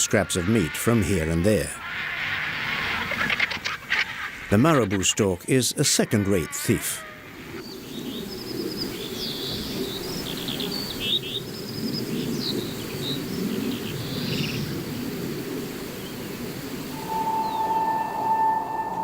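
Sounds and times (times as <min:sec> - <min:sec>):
small birds chirping: 0:07.4 - 0:19.0.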